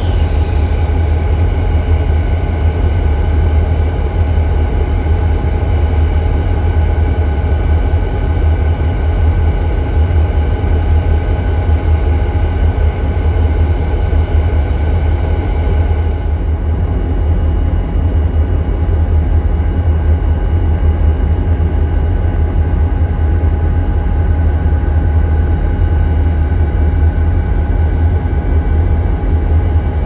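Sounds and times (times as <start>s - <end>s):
locomotive whining tones: 0.0s - 2.0s
diesel locomotive deep rumble: 0.0s - 3.9s.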